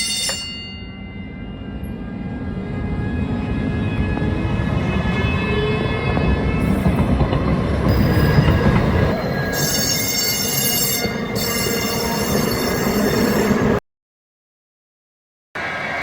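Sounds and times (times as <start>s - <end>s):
train rumble: 1.4s - 13.8s
train wheels squealing: 1.4s - 13.8s.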